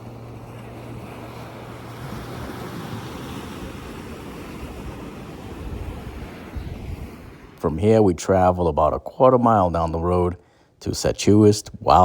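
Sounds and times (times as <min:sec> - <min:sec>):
low steady hum: 0:00.0 - 0:04.2
wind on microphone: 0:00.0 - 0:07.6
ocean surf washing ashore: 0:00.0 - 0:10.3.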